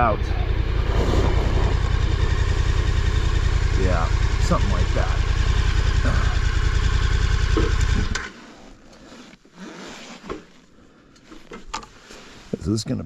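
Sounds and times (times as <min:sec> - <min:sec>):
motorcycle engine idling: 0:00.0 - 0:08.1.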